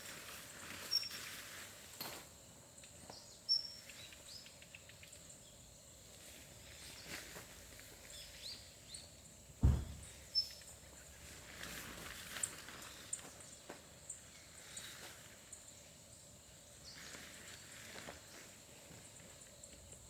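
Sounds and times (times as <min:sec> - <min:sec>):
insects humming: 0:00.0 - 0:20.0
birds chirping: 0:08.0 - 0:11.4
dull low thump: 0:09.6 - 0:10.2.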